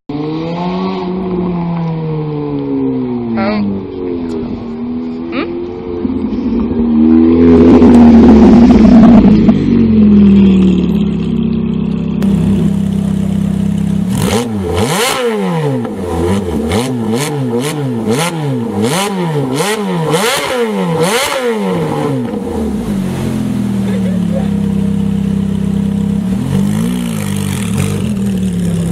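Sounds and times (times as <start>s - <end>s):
sports car engine idling: 3.3s - 14.8s, 21.9s - 28.9s
engine revving blips: 13.8s - 28.9s.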